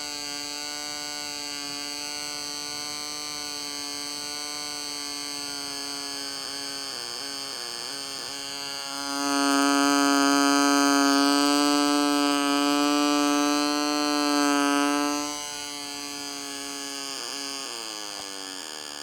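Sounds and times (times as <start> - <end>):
alarm buzzing through speaker: 7.7 - 19.0.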